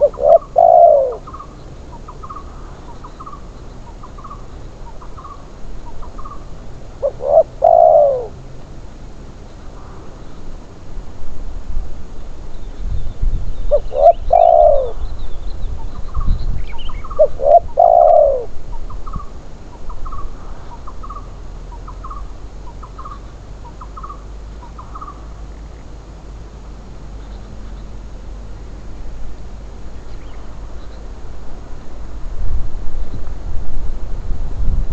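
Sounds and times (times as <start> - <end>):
dove cooing: 0.0 - 10.5, 13.7 - 15.2, 15.8 - 28.6.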